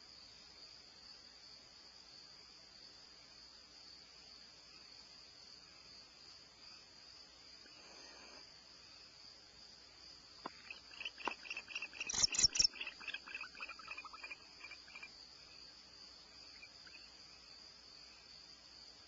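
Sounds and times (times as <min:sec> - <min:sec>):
crickets droning: 0:00.0 - 0:19.0
rapid high chirping calls: 0:10.5 - 0:15.1, 0:16.5 - 0:17.1.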